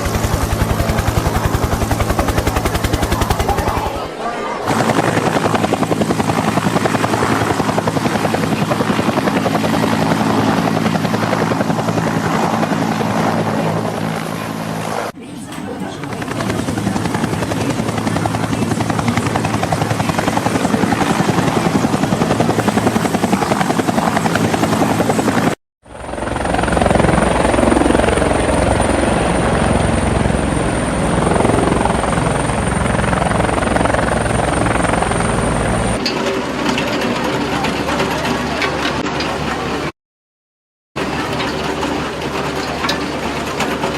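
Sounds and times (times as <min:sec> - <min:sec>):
helicopter rotor chopping: 0:00.0 - 0:39.9, 0:41.0 - 0:43.9.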